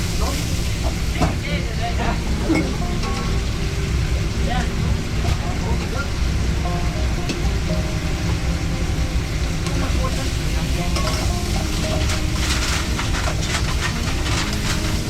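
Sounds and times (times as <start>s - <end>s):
food sizzling in a pan: 0.0s - 15.0s
steady low rumble: 0.0s - 15.0s
utensil scraping a pan: 9.6s - 15.0s.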